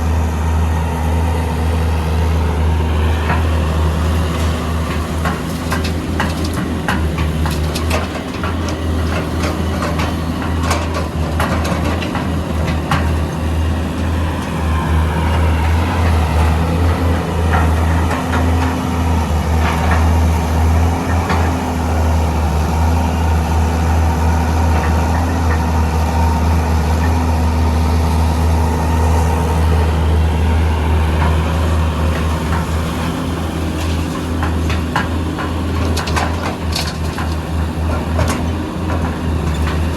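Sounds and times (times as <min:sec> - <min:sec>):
heavy diesel engines running: 0:00.0 - 0:39.9
knocks and clatters: 0:04.9 - 0:13.3, 0:33.7 - 0:39.9.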